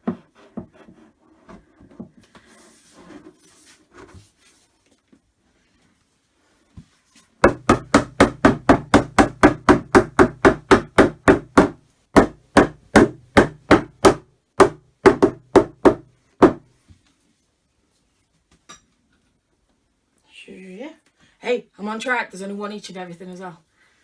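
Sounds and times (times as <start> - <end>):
mallet knocking on wood: 7.4 - 16.6.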